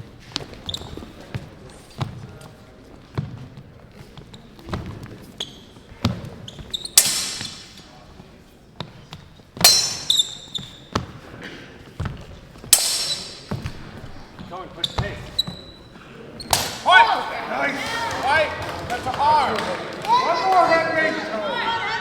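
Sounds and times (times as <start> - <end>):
steel blades clashing: 7.0 - 7.9, 9.6 - 10.8, 12.8 - 13.8.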